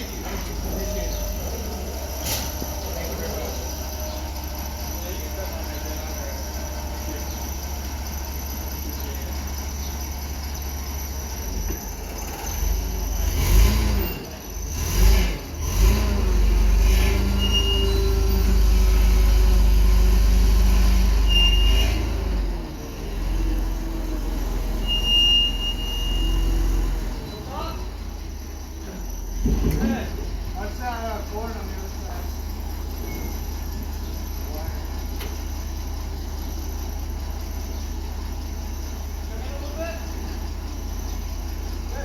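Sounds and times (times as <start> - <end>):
vehicle engine surging: 0.0 - 24.9
short high squeals: 17.1 - 18.9, 21.1 - 22.4, 24.6 - 27.8.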